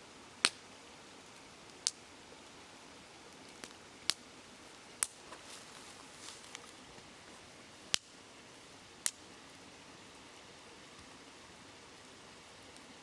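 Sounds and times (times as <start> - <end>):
babbling river: 0.0 - 13.0
campfire crackling: 0.0 - 13.0
sharp fire pops: 3.5 - 4.2, 5.0 - 5.2.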